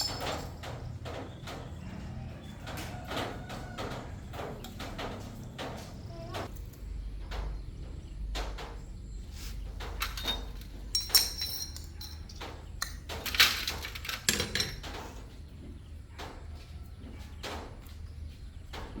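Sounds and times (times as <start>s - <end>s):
metal tools clinking and knocking: 0.0s - 1.6s, 9.8s - 15.3s.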